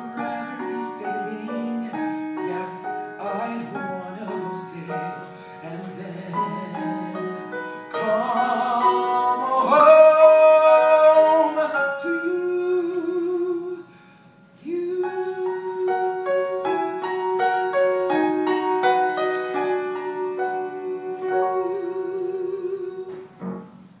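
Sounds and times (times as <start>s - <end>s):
piano chords: 0.0s - 24.0s
person singing a long note: 14.6s - 23.3s.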